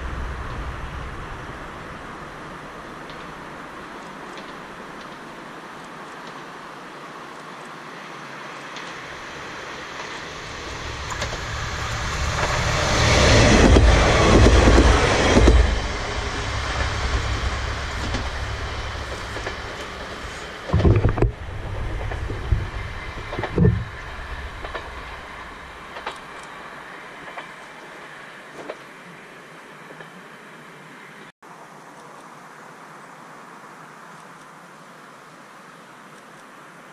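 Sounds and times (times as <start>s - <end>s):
low thumps: 0.0s - 3.4s, 10.4s - 26.0s
train passing on rails: 0.0s - 31.3s.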